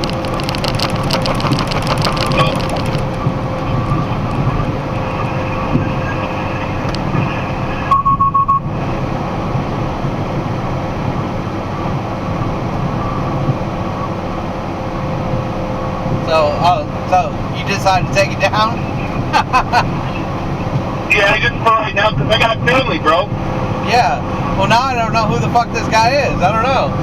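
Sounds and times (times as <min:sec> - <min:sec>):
rattling clicks: 0:00.0 - 0:04.4
truck engine and road drone: 0:00.0 - 0:27.0
short high beeps: 0:07.9 - 0:08.7.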